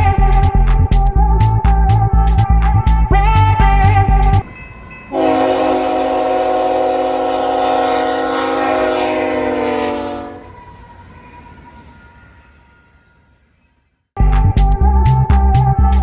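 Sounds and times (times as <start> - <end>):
locomotive air horn: 0.0 - 0.9, 5.1 - 10.6
background music with a beat: 0.0 - 4.4, 14.2 - 16.0.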